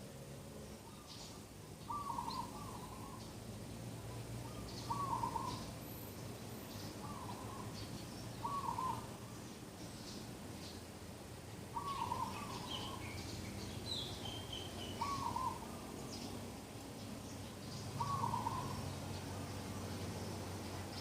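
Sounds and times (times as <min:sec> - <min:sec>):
faint high bird chirps: 0:00.8 - 0:03.4, 0:11.8 - 0:16.4.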